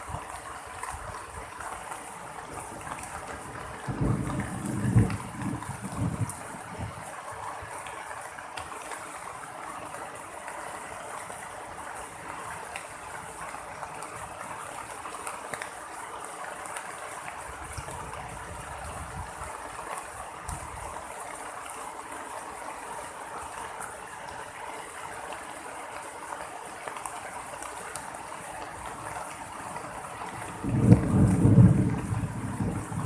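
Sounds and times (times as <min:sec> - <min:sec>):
heavy rain pouring: 0:00.0 - 0:33.0
low rumble of thunder: 0:03.5 - 0:07.1, 0:30.3 - 0:33.0.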